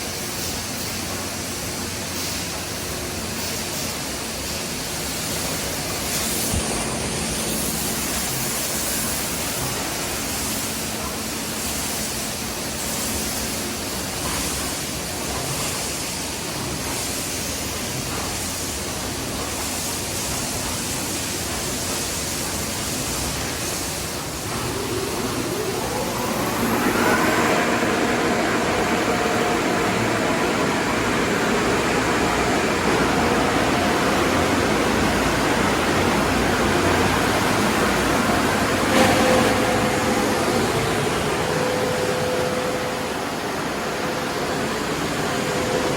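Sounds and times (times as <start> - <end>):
water spraying with a hiss: 0.0 - 43.2
motor whining and humming: 24.2 - 45.9.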